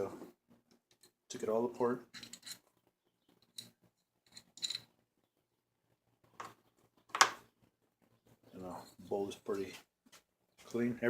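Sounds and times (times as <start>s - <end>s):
small metal parts clicking: 2.1s - 2.7s, 3.4s - 4.9s.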